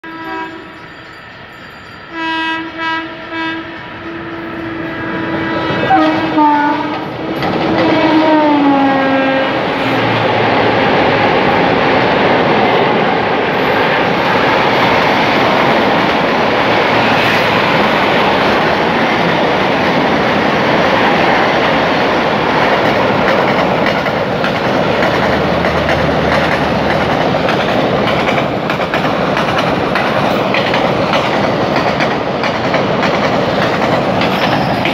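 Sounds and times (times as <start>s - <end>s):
locomotive horn: 0.0s - 0.8s, 2.1s - 9.9s
trains rumbling and clacking past: 0.0s - 34.9s.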